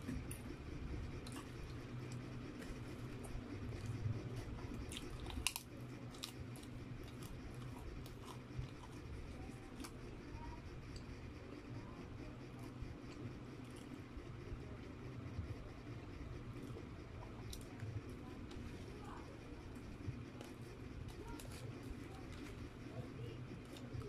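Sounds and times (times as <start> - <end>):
chewing and wet mouth sounds: 0.0 - 24.0
steady low hum: 0.0 - 24.0.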